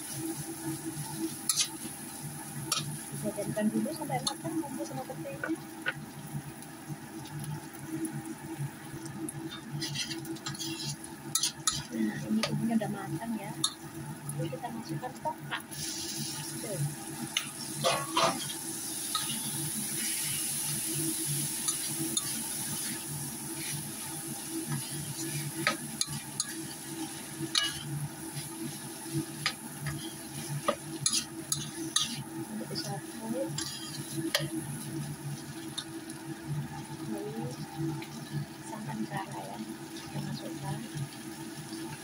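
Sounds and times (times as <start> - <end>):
frying sizzle: 0.0 - 42.0
spatula scraping steel wok: 9.5 - 12.6, 17.5 - 20.4, 24.7 - 34.6.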